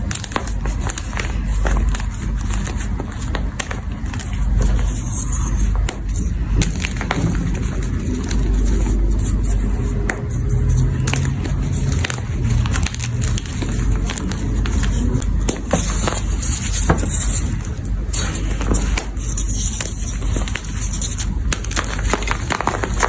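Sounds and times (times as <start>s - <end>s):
chalk crunching and crackling: 0.0s - 23.0s
low rumble: 3.7s - 20.6s.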